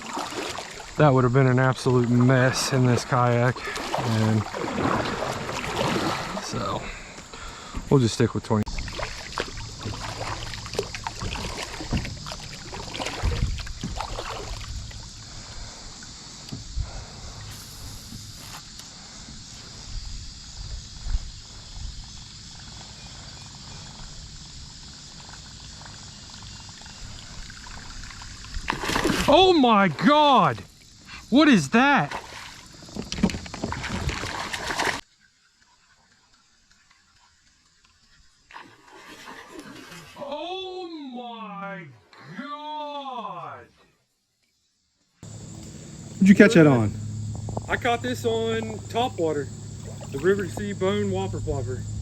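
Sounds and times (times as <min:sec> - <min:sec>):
water splashing against kayak hull: 0:00.0 - 0:07.9, 0:08.7 - 0:18.6, 0:26.0 - 0:29.7, 0:32.0 - 0:35.0, 0:45.3 - 0:52.0.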